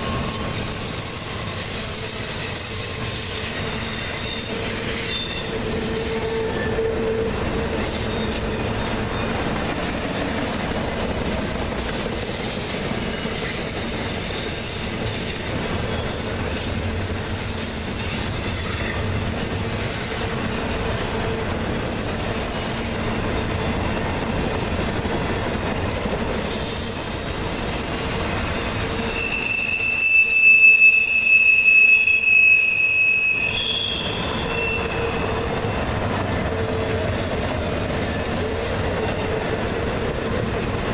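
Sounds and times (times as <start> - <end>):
high wheel squeal: 0.0 - 10.2, 26.4 - 35.9
train wheels rumbling on rails: 0.0 - 40.9.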